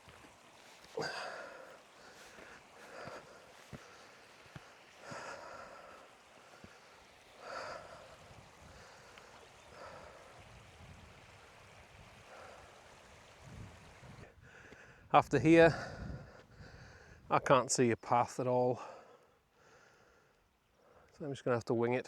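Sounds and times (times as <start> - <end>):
man breathing while walking: 0.0 - 10.5, 14.2 - 15.1, 15.7 - 17.3, 18.8 - 21.2.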